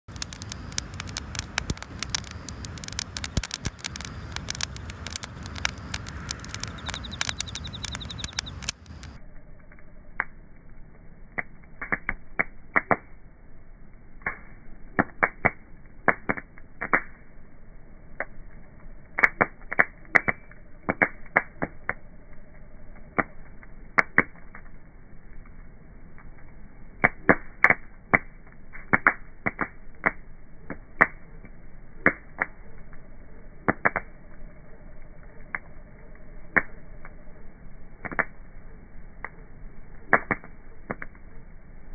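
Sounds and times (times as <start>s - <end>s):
bonfire crackling and popping: 0.0s - 41.9s
fire hissing: 0.1s - 9.2s.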